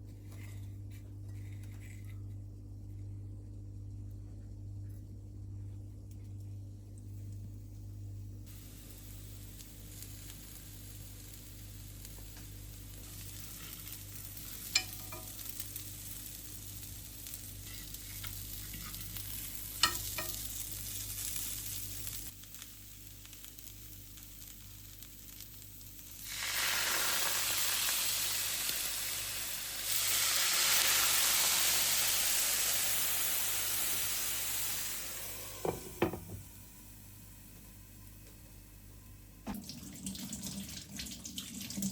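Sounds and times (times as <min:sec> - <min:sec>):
food sizzling in a pan: 0:08.4 - 0:38.7.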